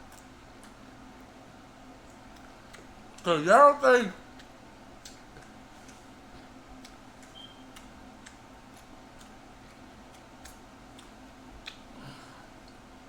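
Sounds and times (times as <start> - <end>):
steady low hum: 0.0 - 13.0
chewing mouth clicks: 2.0 - 3.2, 6.8 - 11.9.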